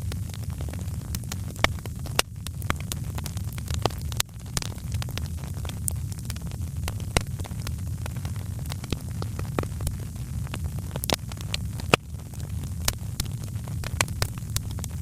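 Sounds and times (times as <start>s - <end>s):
low rumble of burning fire: 0.0s - 15.0s
wood fire crackling and popping: 0.0s - 15.0s.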